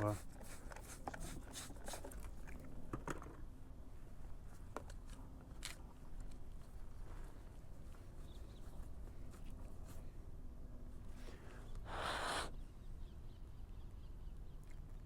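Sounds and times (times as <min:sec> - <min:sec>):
small clicks and crunchy scraping: 0:00.4 - 0:03.5, 0:04.4 - 0:10.1.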